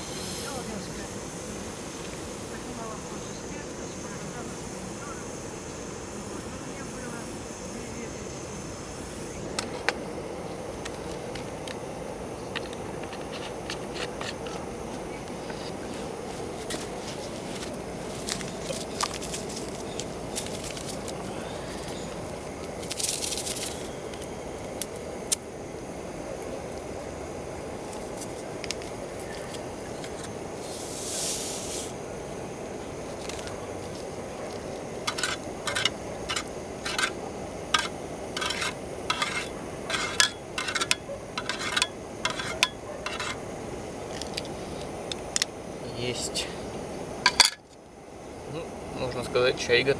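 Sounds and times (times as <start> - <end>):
short hissing bursts: 0.0 - 10.6, 29.0 - 40.8
gas burner running: 0.0 - 49.9
spoon clinking against mug: 35.1 - 37.2, 37.8 - 43.4, 47.3 - 47.7.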